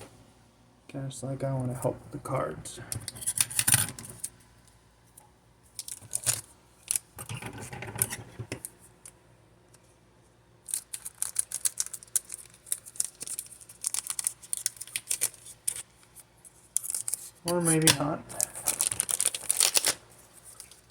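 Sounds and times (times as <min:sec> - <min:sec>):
card packaging crinkling: 0:05.7 - 0:07.2, 0:10.6 - 0:20.9.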